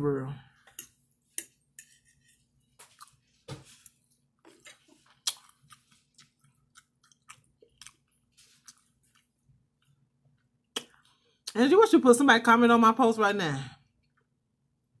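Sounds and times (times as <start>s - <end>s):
person chewing with wet smacks: 2.8s - 11.6s.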